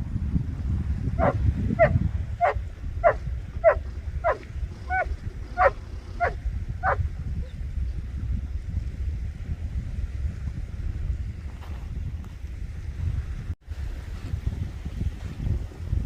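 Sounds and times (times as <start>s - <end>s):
wind rumble on microphone: 0.0s - 16.0s
dog barking: 1.2s - 7.0s.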